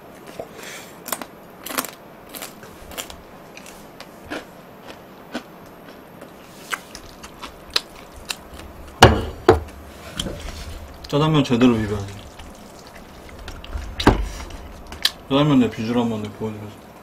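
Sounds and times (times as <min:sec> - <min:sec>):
person chewing food: 0:00.2 - 0:09.0.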